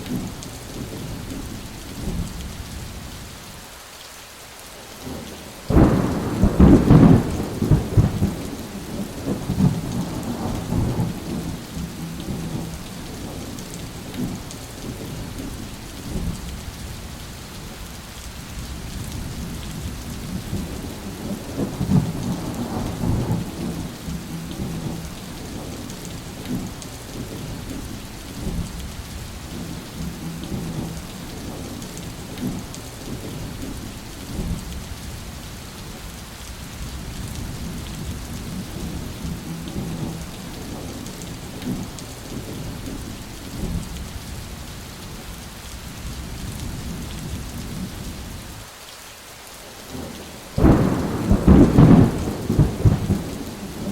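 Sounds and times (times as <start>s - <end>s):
steady rain: 0.0s - 53.9s
rolling thunder: 5.7s - 15.0s, 19.0s - 33.7s, 50.6s - 53.9s.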